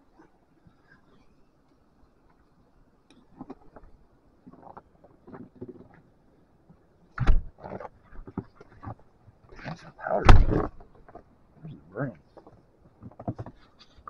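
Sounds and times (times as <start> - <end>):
loud thump: 10.2 - 10.7.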